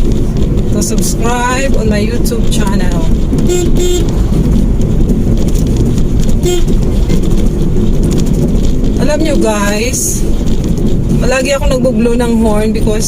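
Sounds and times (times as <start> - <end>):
road and engine noise in car: 0.0 - 13.0
car horn tooting: 3.4 - 4.2, 6.4 - 7.2.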